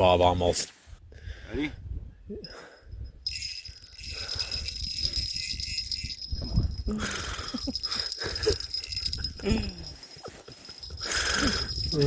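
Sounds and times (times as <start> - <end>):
fishing reel whirring: 3.2 - 10.1, 10.9 - 12.0.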